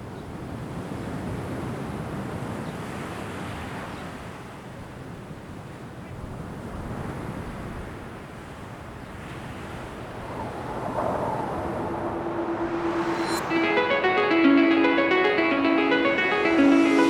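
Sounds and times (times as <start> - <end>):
wind: 0.0 - 17.0
ocean surf: 6.3 - 17.0
held musical tone: 11.4 - 17.0.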